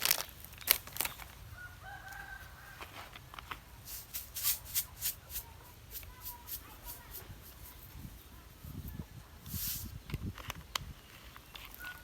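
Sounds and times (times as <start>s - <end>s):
rooster crowing: 1.5s - 3.2s.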